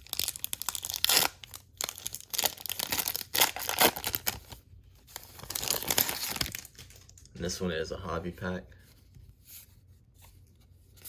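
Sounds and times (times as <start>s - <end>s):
wrapper tearing and crinkling: 0.0s - 7.3s.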